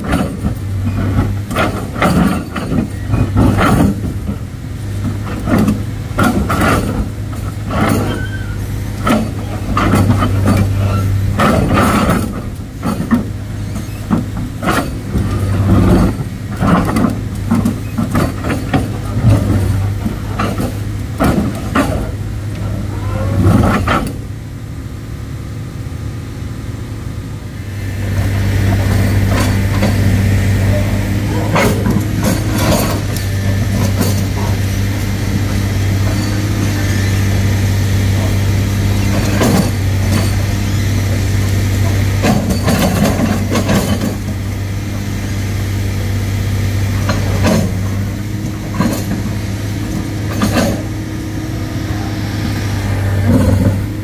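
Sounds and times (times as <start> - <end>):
sharp metal knocks and clanks: 0.0 - 4.4, 9.0 - 22.2, 28.7 - 36.9, 38.2 - 44.3, 47.0 - 51.1
heavy diesel engine running: 0.0 - 54.0.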